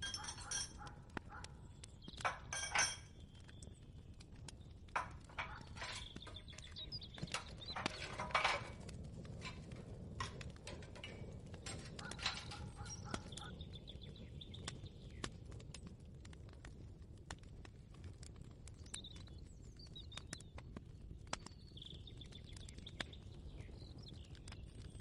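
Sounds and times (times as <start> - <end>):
kitchen clicks and clinks: 0.0 - 1.0, 2.2 - 3.1, 5.0 - 13.5.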